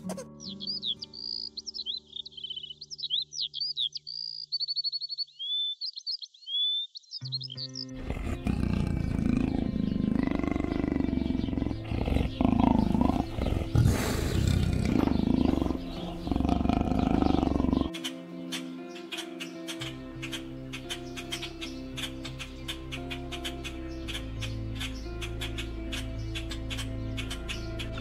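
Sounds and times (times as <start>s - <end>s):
background music: 0.0s - 4.4s, 7.3s - 28.0s
birds chirping and whistling: 0.0s - 28.0s
big cat growling and roaring: 8.0s - 17.9s.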